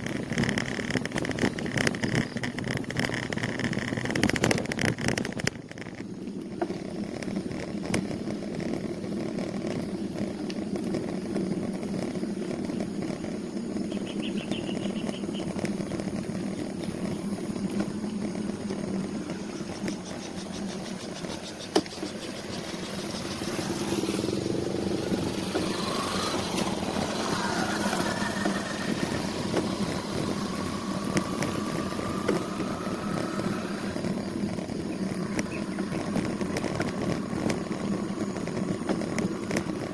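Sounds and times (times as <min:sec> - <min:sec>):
road riding rumble: 0:00.0 - 0:39.9
vehicle passing: 0:11.7 - 0:39.9.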